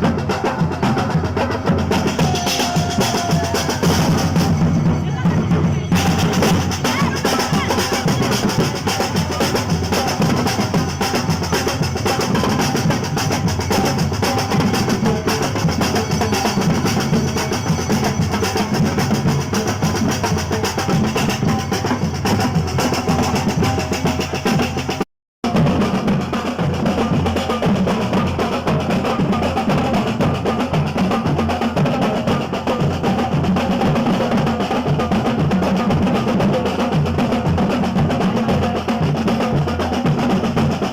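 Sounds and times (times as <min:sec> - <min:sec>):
bass drum: 0:00.0 - 0:40.9
snare drum rolls: 0:01.9 - 0:04.9.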